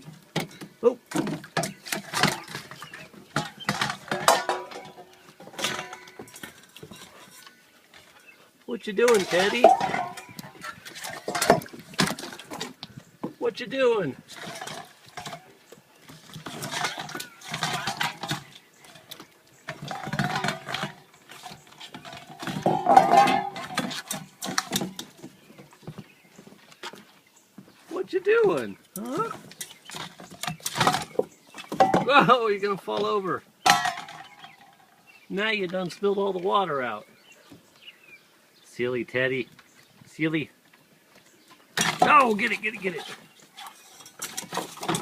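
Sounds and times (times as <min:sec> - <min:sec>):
water bowl clattering: 0:00.0 - 0:08.4, 0:09.0 - 0:13.4, 0:14.0 - 0:25.5, 0:28.5 - 0:35.2, 0:41.7 - 0:45.0.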